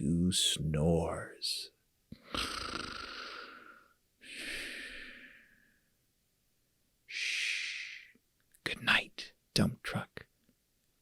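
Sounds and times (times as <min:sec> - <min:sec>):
person breathing snore-like: 0:02.2 - 0:05.6.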